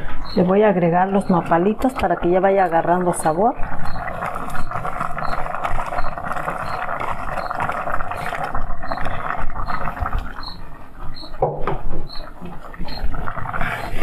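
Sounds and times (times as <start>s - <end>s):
food frying in hot oil: 1.1s - 11.4s.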